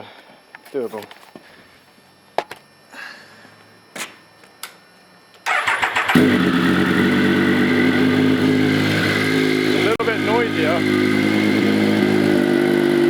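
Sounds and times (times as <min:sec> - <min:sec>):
motorcycle engine idling: 0:05.5 - 0:13.0.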